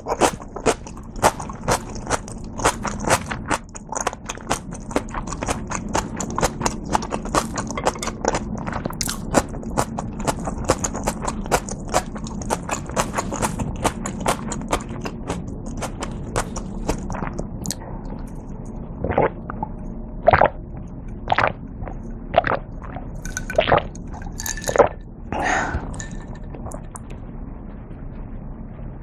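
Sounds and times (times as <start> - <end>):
chewing with wet mouth clicks: 0.0 - 18.5, 21.3 - 25.0.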